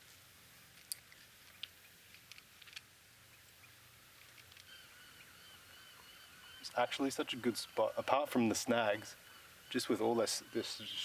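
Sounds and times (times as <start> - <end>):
faint high chirp: 9.2 - 11.0.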